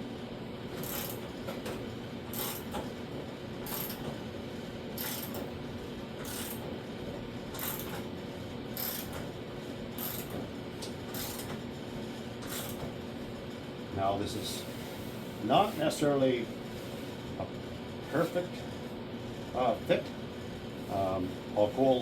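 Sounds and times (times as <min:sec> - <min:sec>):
ratchet clicking: 0:00.8 - 0:01.2, 0:02.3 - 0:02.6, 0:03.7 - 0:04.0, 0:05.0 - 0:05.4, 0:06.2 - 0:06.6, 0:07.6 - 0:08.0, 0:08.8 - 0:09.2, 0:10.0 - 0:10.4, 0:11.1 - 0:11.5.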